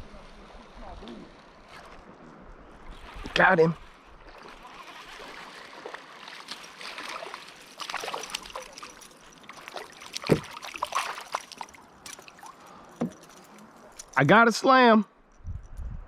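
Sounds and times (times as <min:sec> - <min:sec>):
water splashing against kayak: 0:02.7 - 0:14.1.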